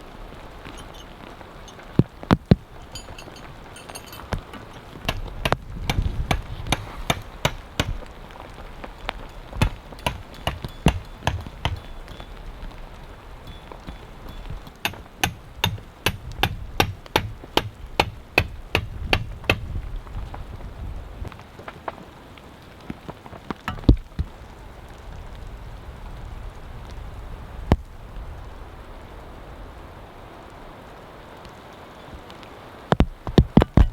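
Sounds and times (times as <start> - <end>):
steady rain: 0.0 - 33.9
sharp knocks: 2.4 - 8.1, 9.5 - 12.2, 13.7 - 19.7, 23.7 - 24.3.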